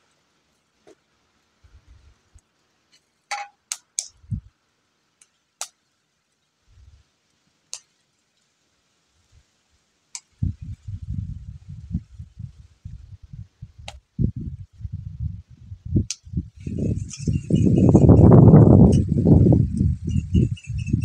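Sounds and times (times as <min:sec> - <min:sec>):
dull low thumps: 0:10.4 - 0:20.4.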